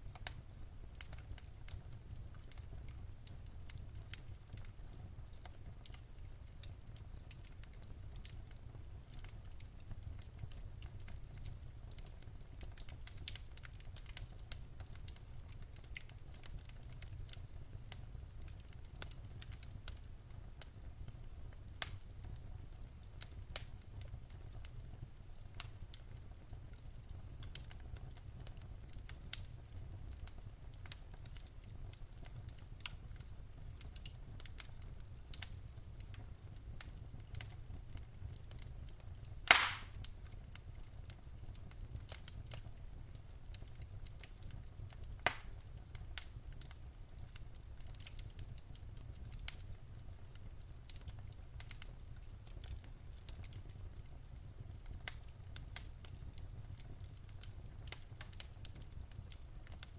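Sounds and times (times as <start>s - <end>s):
fire crackling with snaps: 0.0s - 59.9s
low rumble of fire: 0.0s - 59.9s
loud fire pop: 39.5s - 40.0s, 45.3s - 45.5s.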